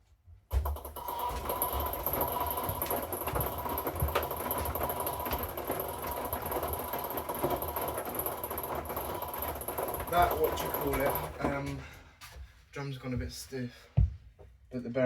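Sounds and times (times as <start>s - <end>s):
washing machine running: 0.5s - 11.8s.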